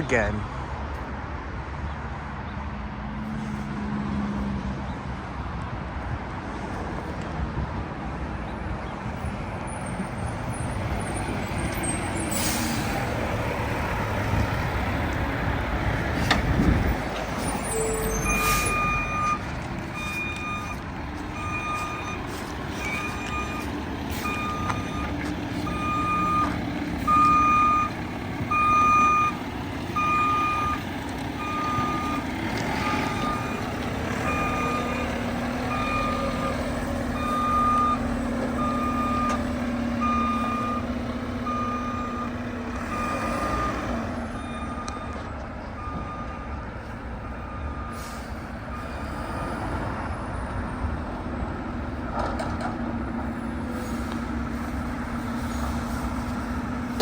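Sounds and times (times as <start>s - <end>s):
diesel engine running: 8.6s - 57.0s
reversing alarm beeping: 17.6s - 19.4s, 20.0s - 20.8s, 21.4s - 22.2s, 22.8s - 29.4s, 30.0s - 30.8s, 31.4s - 33.6s, 35.7s - 39.4s, 40.0s - 46.6s, 47.2s - 49.5s.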